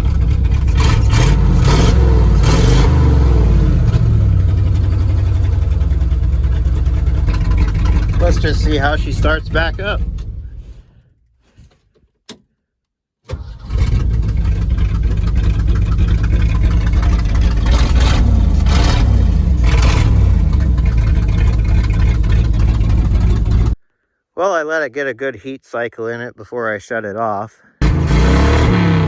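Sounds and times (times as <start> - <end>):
engine revving: 0.0 - 10.8, 13.3 - 23.8, 27.8 - 29.0
truck engine starting and running: 0.0 - 12.4, 13.3 - 23.8, 27.8 - 29.0.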